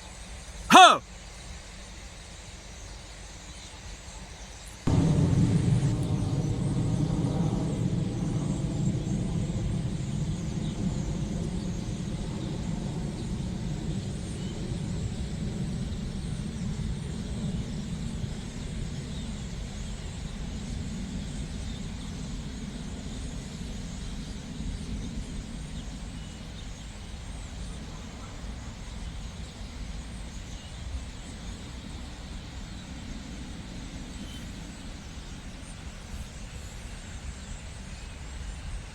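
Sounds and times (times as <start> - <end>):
low engine rumble: 4.9 - 19.8.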